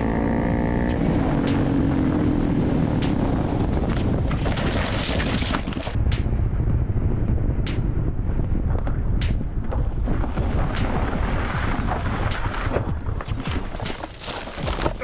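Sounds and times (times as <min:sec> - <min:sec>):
motorcycle engine and road noise: 0:00.0 - 0:11.0
wind rushing over microphone: 0:00.0 - 0:13.8.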